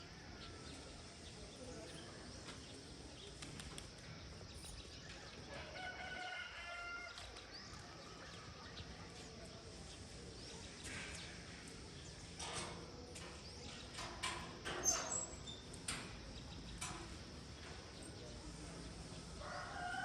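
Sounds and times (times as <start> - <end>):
rooster crowing: 5.5 - 7.4, 19.4 - 20.0.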